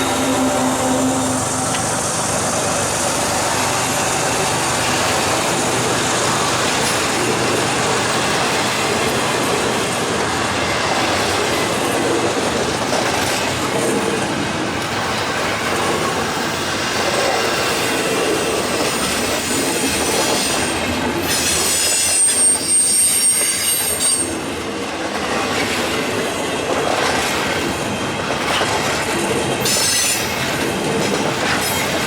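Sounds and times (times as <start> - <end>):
steel wheels on rails: 0.0 - 32.0.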